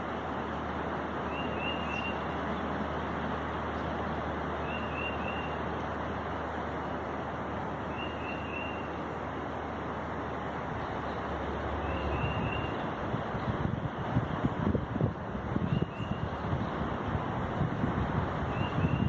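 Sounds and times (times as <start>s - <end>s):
bird chirping: 4.6s - 5.6s, 7.9s - 9.0s
strong wind rushing: 13.0s - 19.0s.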